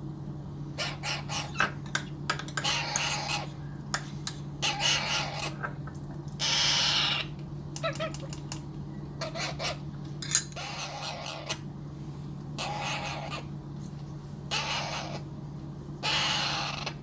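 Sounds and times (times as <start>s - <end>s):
steady low hum: 0.0s - 17.0s
raspy begging calls: 0.8s - 1.8s, 2.6s - 3.6s, 4.6s - 5.8s, 6.4s - 8.2s, 10.6s - 11.6s, 12.6s - 13.5s, 14.5s - 15.3s, 16.0s - 17.0s.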